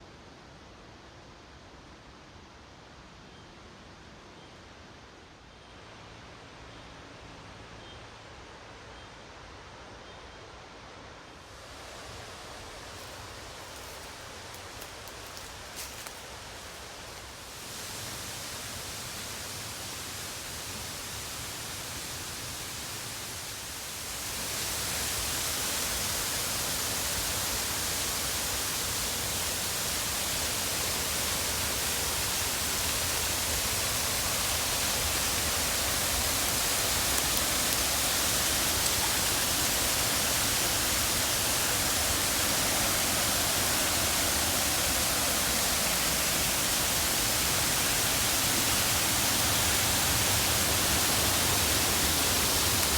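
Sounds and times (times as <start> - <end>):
waterfall rushing: 11.5 - 52.9.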